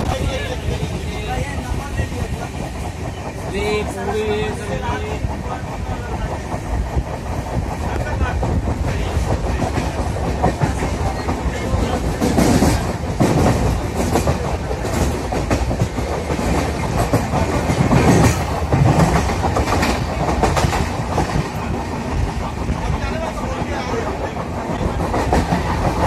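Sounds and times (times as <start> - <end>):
train rumble: 0.0 - 26.0
wheels clattering over rail joints: 8.9 - 26.0.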